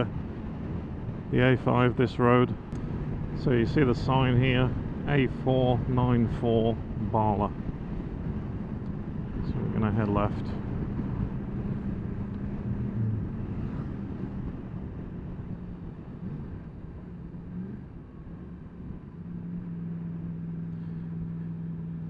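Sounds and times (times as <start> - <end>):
wind and road noise: 0.0 - 22.0
motorcycle engine running: 7.6 - 17.9.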